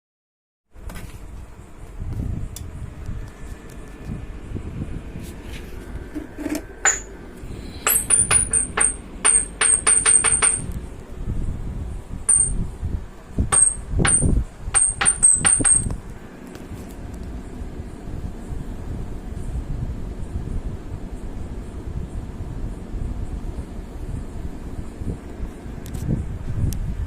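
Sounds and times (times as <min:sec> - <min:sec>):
steady low hum: 0:00.7 - 0:27.0
light metallic clinks: 0:07.8 - 0:10.7.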